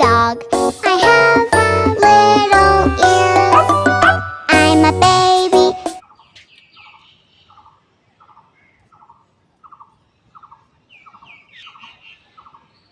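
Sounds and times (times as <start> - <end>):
music: 0.0 - 6.0.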